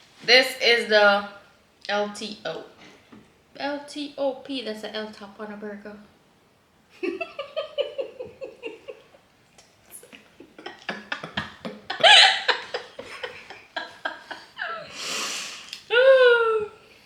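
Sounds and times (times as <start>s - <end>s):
people laughing: 7.0s - 9.2s, 10.2s - 14.8s.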